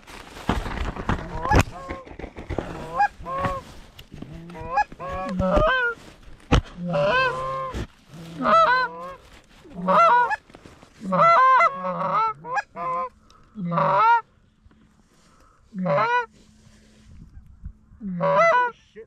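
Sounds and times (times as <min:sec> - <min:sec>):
geese honking: 0:02.8 - 0:03.6, 0:06.8 - 0:10.4, 0:11.0 - 0:14.3, 0:15.7 - 0:16.4, 0:18.0 - 0:19.0.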